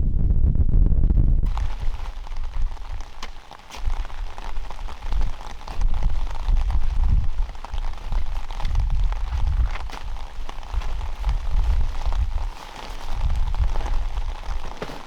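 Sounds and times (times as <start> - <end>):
low rumble: 0.0 - 3.0
rain pattering on a surface: 1.5 - 15.0.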